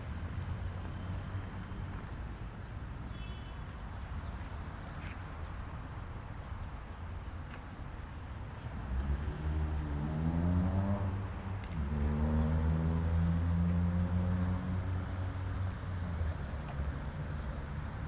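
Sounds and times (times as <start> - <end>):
street noise: 0.0 - 18.0
vehicle engine accelerating: 8.9 - 15.4.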